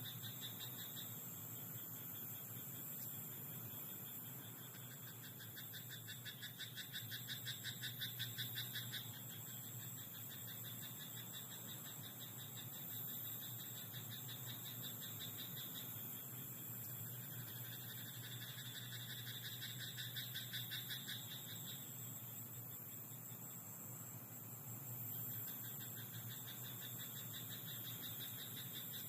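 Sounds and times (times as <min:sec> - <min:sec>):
frog croaking: 0:03.8 - 0:16.1, 0:17.0 - 0:22.1, 0:25.3 - 0:29.0.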